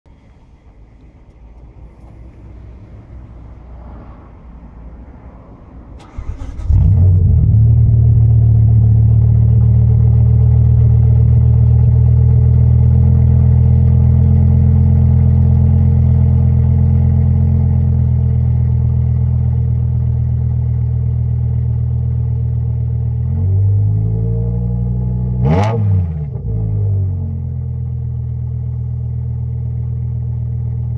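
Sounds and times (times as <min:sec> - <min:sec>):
car engine starting and idling: 0:00.1 - 0:30.9
car engine revving: 0:02.0 - 0:15.2, 0:23.2 - 0:28.1.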